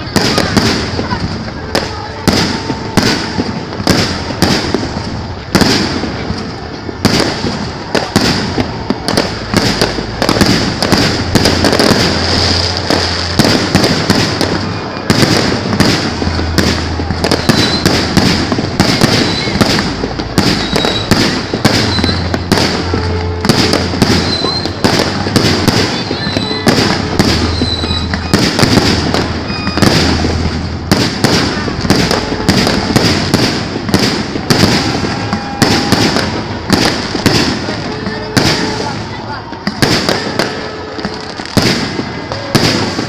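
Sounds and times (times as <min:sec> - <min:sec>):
fireworks bursting with sharp bangs: 0:00.0 - 0:43.0
fireworks crackling: 0:00.0 - 0:43.0.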